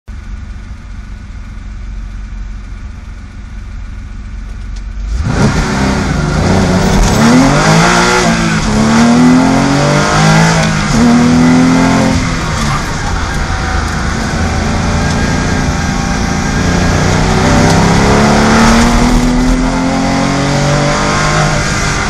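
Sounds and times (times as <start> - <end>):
race car engine revving: 5.0 - 22.0.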